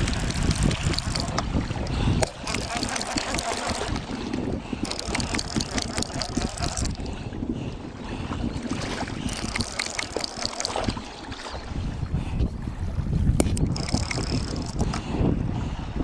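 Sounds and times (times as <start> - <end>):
wind buffeting microphone: 0.0 - 16.0
crackles and clicks: 9.2 - 11.0.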